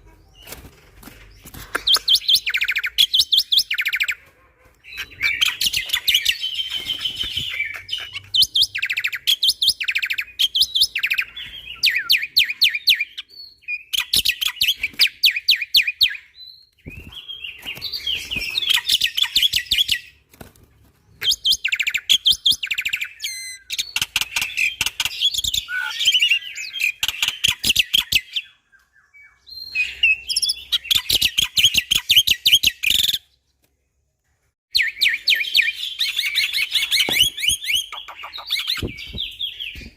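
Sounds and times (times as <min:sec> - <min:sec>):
starling chattering song: 0:36.0 - 0:39.9.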